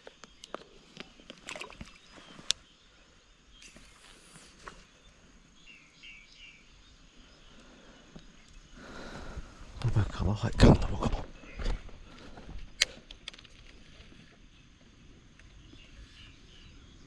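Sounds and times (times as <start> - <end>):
faint bird chirps: 0.0 - 17.0
light clicks: 12.6 - 14.1.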